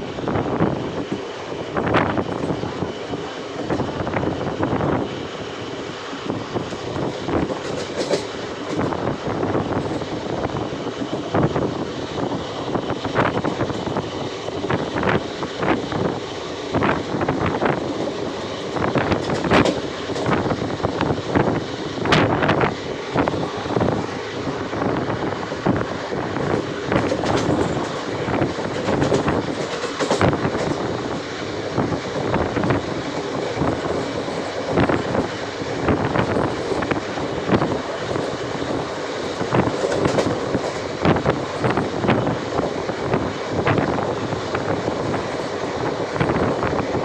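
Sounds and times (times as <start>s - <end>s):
train rumbling on rails: 0.0s - 47.0s
wheels clanking and rattling: 6.6s - 9.0s, 26.4s - 30.9s, 32.4s - 42.2s.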